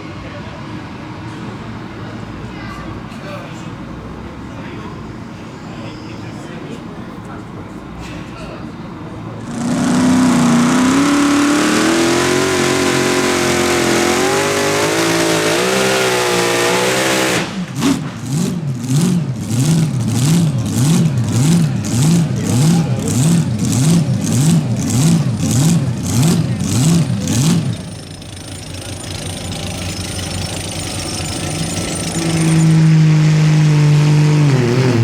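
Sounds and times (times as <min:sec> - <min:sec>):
vehicle engine revving hard: 0:09.4 - 0:28.0, 0:30.0 - 0:35.0.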